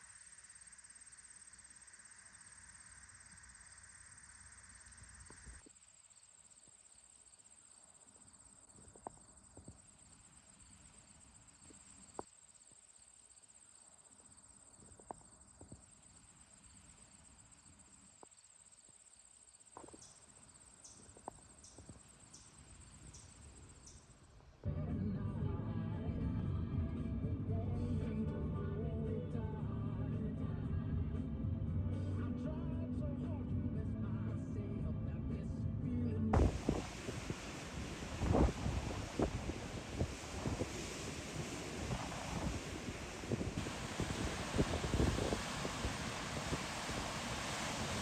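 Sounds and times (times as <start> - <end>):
insects trilling: 0.0 - 24.6, 36.4 - 48.0.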